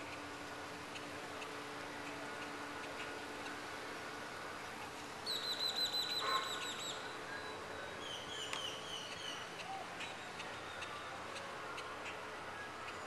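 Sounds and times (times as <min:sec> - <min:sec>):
steady background hiss: 0:00.0 - 0:13.0
bird whistling calls: 0:05.2 - 0:10.9.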